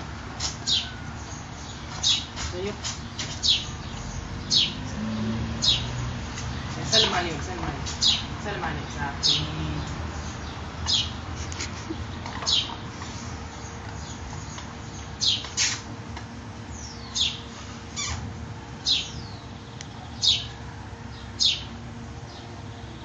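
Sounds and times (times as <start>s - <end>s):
small bird chirping: 0.4s - 7.2s.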